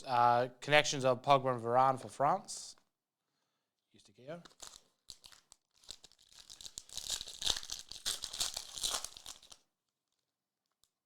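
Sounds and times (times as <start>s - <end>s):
foil pack crinkling and tearing: 4.4s - 10.2s.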